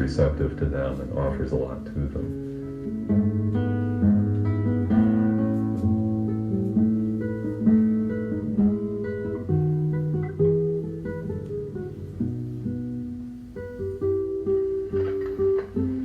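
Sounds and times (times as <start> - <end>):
acoustic guitar picking and strumming: 0.0 - 16.0.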